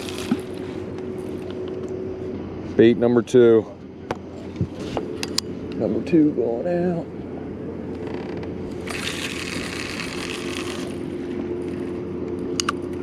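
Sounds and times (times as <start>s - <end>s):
fishing reel spool whirring: 0.0s - 1.6s, 8.1s - 11.9s
steady low hum: 0.0s - 13.0s.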